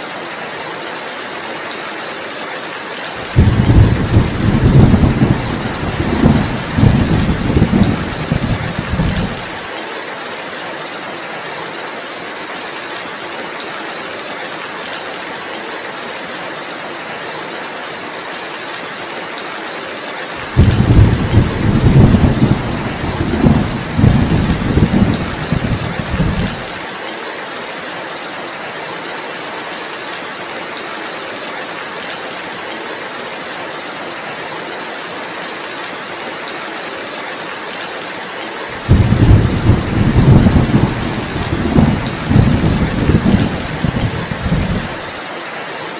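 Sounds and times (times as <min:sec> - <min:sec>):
heavy rain falling: 0:00.1 - 0:45.9
thunder rumbling: 0:03.2 - 0:09.6, 0:20.4 - 0:26.8, 0:38.8 - 0:45.0.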